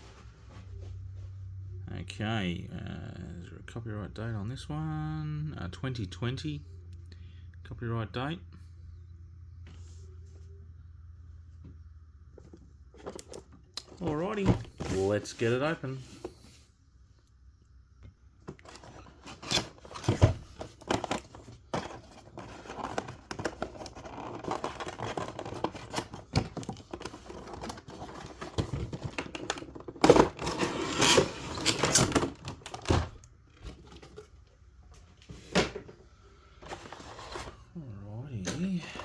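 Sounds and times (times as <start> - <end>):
packaging clicking and scraping: 18.5 - 34.4
packaging tearing and rustling: 18.7 - 32.9.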